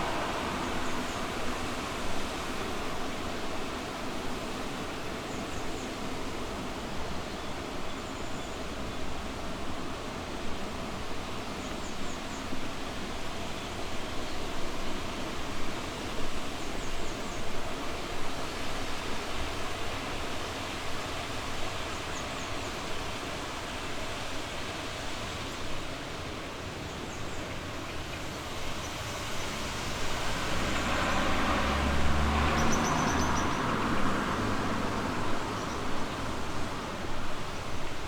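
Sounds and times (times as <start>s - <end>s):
river water rushing: 0.0s - 5.2s, 14.0s - 38.0s
vehicle engine passing: 28.4s - 37.3s.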